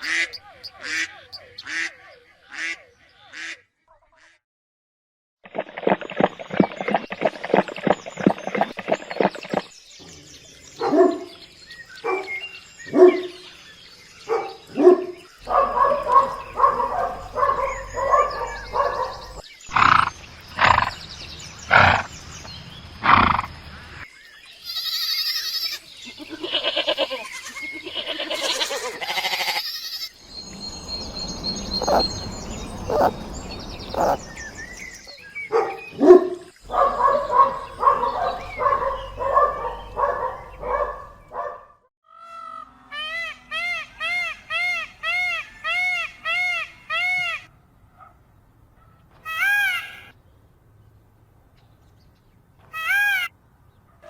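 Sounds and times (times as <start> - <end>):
ducks quacking: 0.0 - 4.4, 15.4 - 20.9, 30.2 - 34.9, 36.6 - 41.0.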